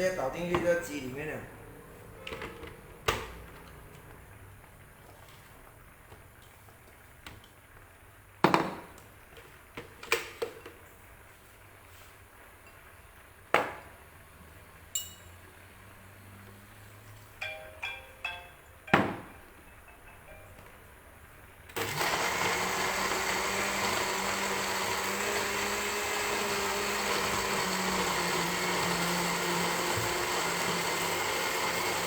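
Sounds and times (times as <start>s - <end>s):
ringing clinks of utensils: 15.0s - 15.4s, 17.4s - 19.0s, 19.6s - 20.7s
ringing ping: 15.0s - 15.4s, 17.4s - 20.6s.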